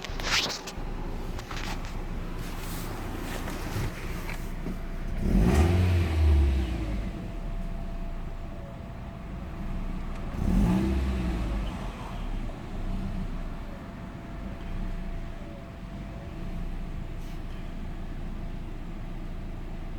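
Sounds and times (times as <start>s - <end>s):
car engine idling and revving: 0.0s - 19.9s.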